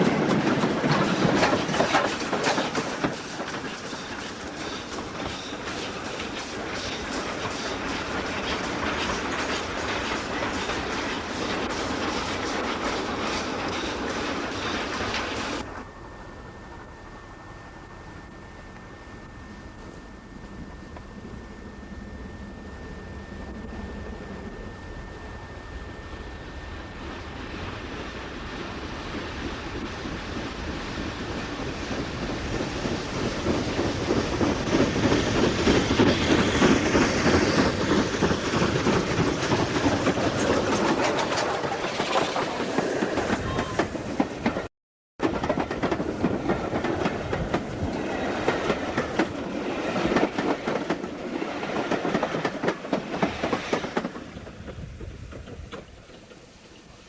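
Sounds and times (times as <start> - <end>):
wheels clattering over rail joints: 0.0 - 15.7, 32.2 - 56.8
steam train running past: 0.0 - 57.0.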